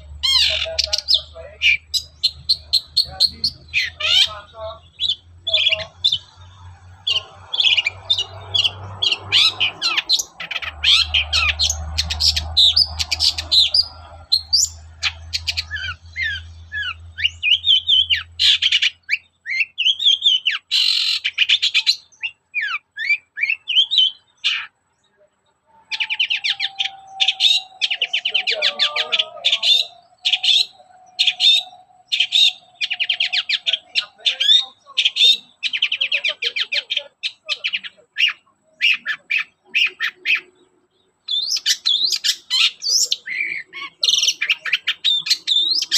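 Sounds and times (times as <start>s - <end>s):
shrike singing: 0.0s - 45.9s.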